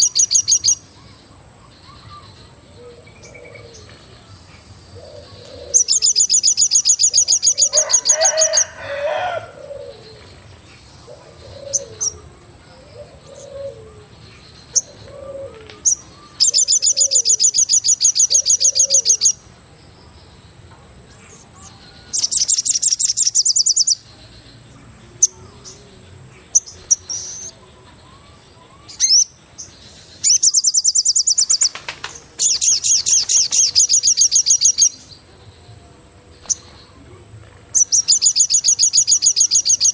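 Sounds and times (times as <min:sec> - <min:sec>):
bird high trill: 0:05.0 - 0:10.1, 0:14.8 - 0:19.4
soft low cooing: 0:11.0 - 0:14.2.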